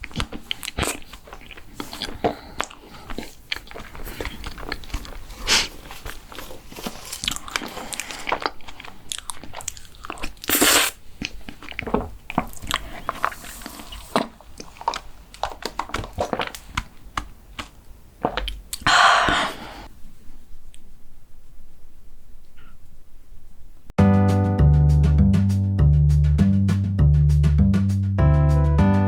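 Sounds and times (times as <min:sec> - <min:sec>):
crunchy chewing: 0:00.0 - 0:18.9.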